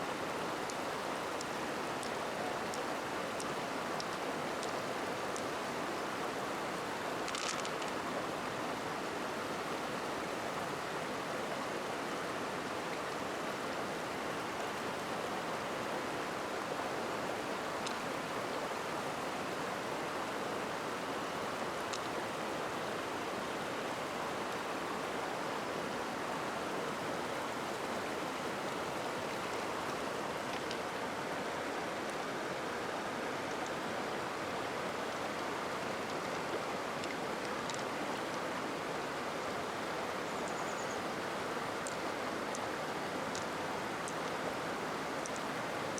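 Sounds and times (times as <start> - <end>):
stream flowing: 0.0 - 45.9
faint clicks: 0.7 - 4.8, 7.2 - 8.0, 29.5 - 30.8, 37.0 - 38.4, 45.2 - 45.5.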